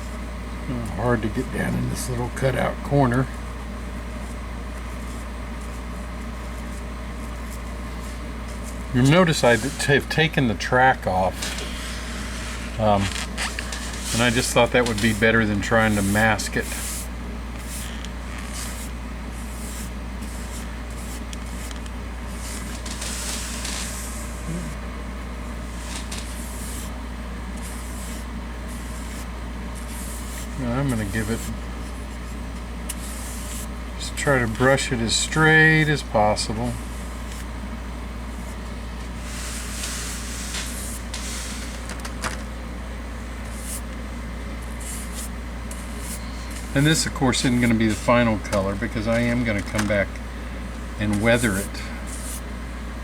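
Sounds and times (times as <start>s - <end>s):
steady low hum: 0.0s - 53.0s
paintbrush swishing: 6.5s - 10.0s, 13.7s - 24.5s, 25.6s - 27.0s, 27.6s - 33.7s, 39.2s - 41.9s, 43.5s - 43.9s, 44.7s - 48.1s, 51.3s - 52.5s.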